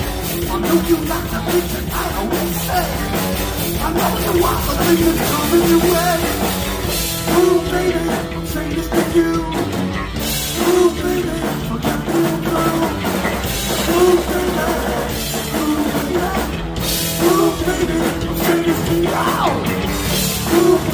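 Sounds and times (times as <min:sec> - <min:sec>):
bass guitar: 0:00.0 - 0:20.9
distorted electric guitar riffing: 0:00.0 - 0:20.9
pounding drum kit: 0:00.0 - 0:20.9.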